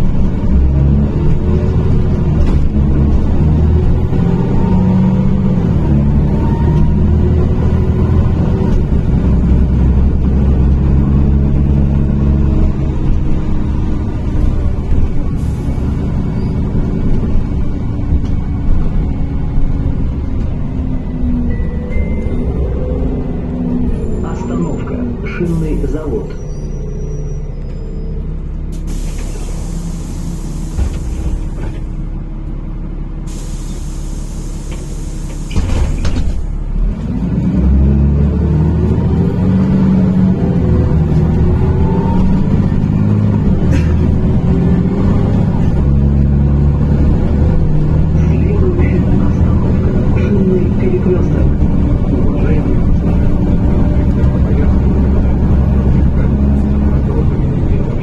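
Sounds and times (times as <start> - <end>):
bus engine drone: 0.0 - 58.0
compressed air hissing: 33.3 - 35.6.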